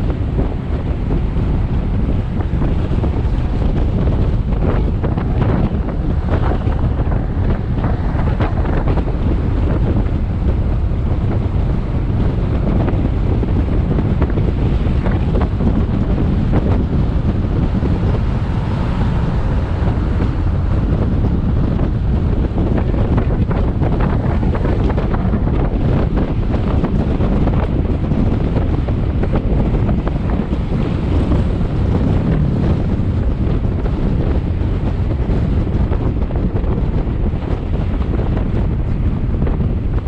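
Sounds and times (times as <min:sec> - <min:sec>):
road noise: 0:00.0 - 0:40.0
wind buffeting microphone: 0:00.0 - 0:40.0.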